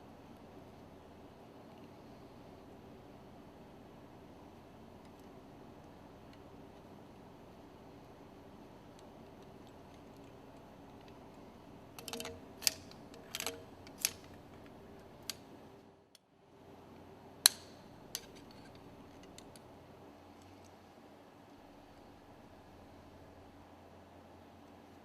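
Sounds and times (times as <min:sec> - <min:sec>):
clinks of tools and metal parts: 0:12.0 - 0:14.4.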